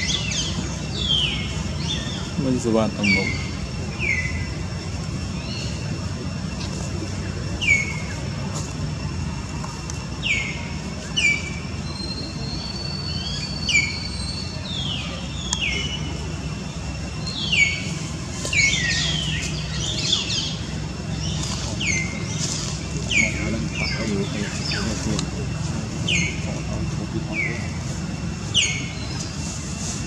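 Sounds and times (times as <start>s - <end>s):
birds chirping: 0.0s - 30.0s
steady low hum: 0.0s - 30.0s.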